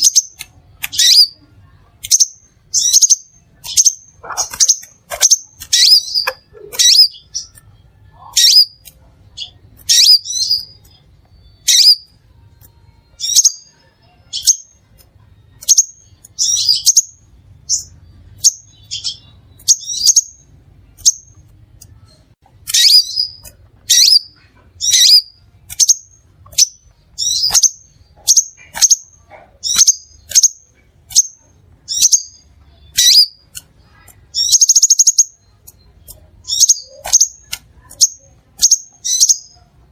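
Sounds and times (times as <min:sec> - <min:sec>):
bird chipping calls: 0:02.0 - 0:11.0, 0:22.6 - 0:39.6.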